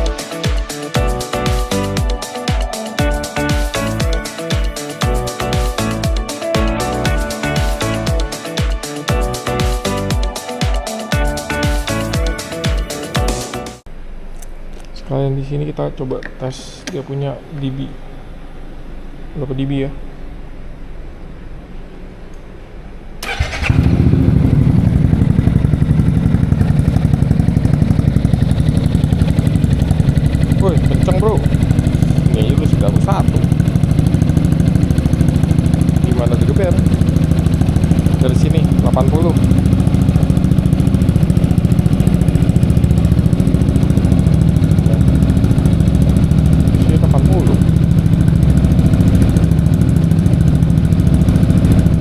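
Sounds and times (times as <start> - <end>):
scooter engine running: 23.2 - 52.0.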